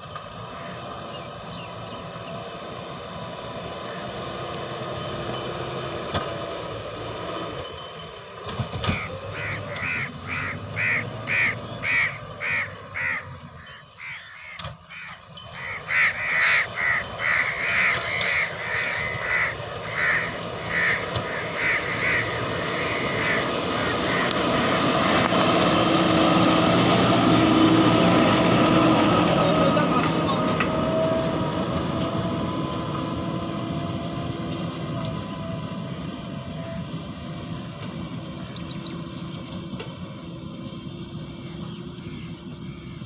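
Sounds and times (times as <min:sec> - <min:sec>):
steady machine noise: 0:07.7 - 0:34.4
bird harsh calls: 0:08.8 - 0:25.2, 0:41.2 - 0:43.0.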